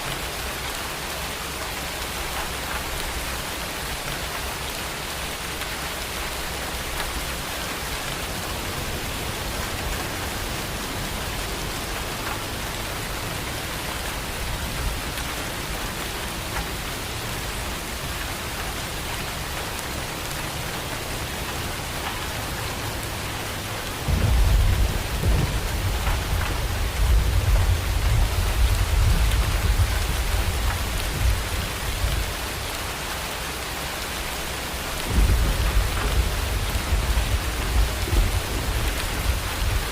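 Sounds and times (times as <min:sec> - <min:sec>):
steady rain: 0:00.0 - 0:39.9
low rumble of thunder: 0:23.5 - 0:32.8, 0:34.8 - 0:39.9.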